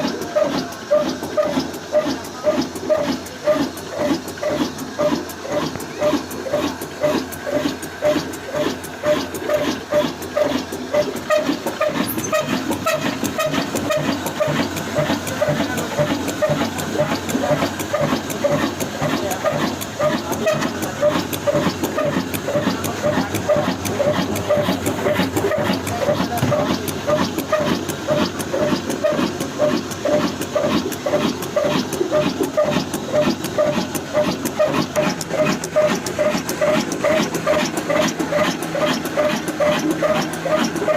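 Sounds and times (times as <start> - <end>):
diesel engine exhaust beat: 0.0 - 40.9.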